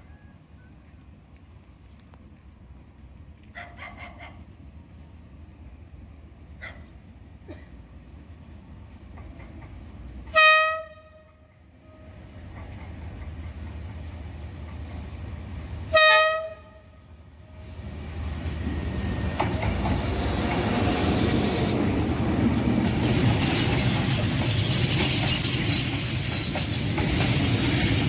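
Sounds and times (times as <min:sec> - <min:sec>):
train engine and wheel noise: 0:00.0 - 0:28.0
locomotive horn blasts: 0:10.3 - 0:12.2, 0:15.9 - 0:17.0.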